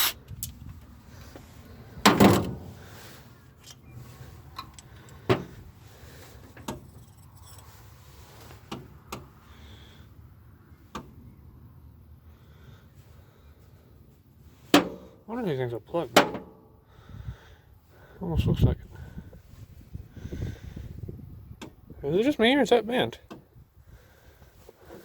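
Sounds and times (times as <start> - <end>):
tools clattering and clinking: 0.0 - 0.7, 6.4 - 7.9.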